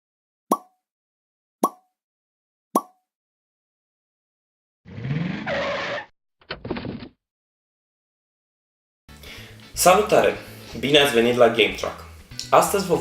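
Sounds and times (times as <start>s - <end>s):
tyre squeal: 4.9s - 6.1s.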